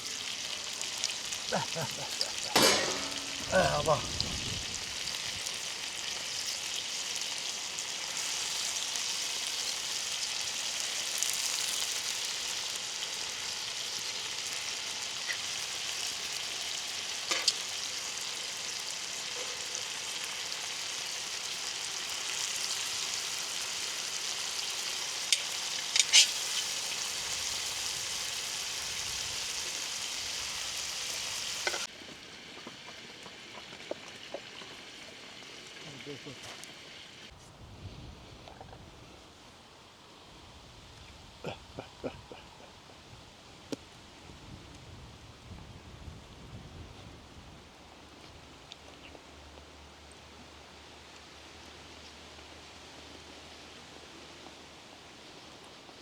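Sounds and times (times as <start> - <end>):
chicken sizzling on a griddle: 0.0 - 37.3, 50.0 - 56.0.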